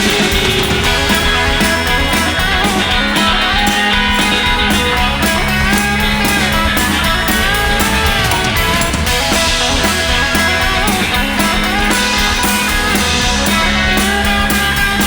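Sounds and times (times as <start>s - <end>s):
bass guitar: 0.0s - 15.0s
electric guitars: 0.0s - 15.0s
steady drum beat: 0.0s - 15.0s.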